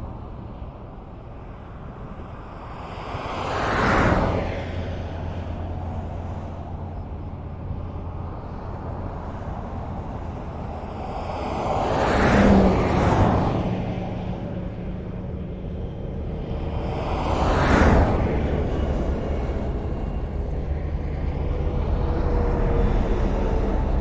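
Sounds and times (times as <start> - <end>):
highway traffic rumble: 0.0 - 24.0
vehicle passing close by: 3.0 - 15.8, 16.4 - 24.0.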